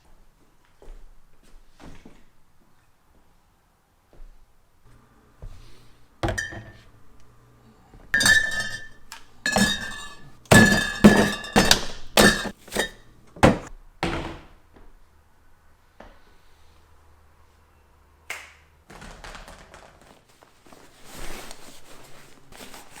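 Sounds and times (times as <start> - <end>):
hard knocks and clinks: 6.2 - 6.9, 8.2 - 13.7.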